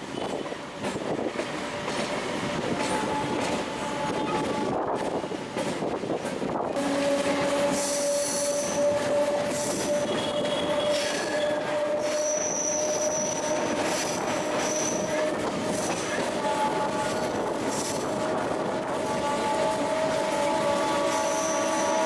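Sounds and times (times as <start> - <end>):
electric train whine: 0.0 - 22.0
high-pitched wheel squeal: 7.2 - 18.0.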